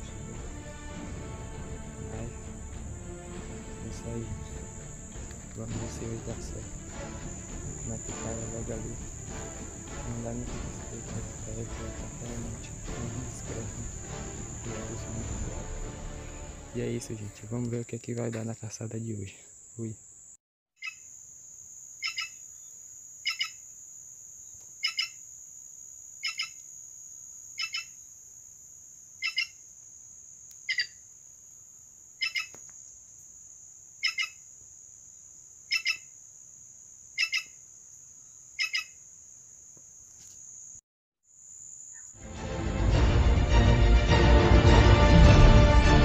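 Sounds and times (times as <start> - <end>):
insects droning: 0.0 - 46.0
bird doubled call: 32.2 - 32.6, 34.0 - 34.4, 35.7 - 36.1, 37.2 - 37.6, 38.6 - 39.0.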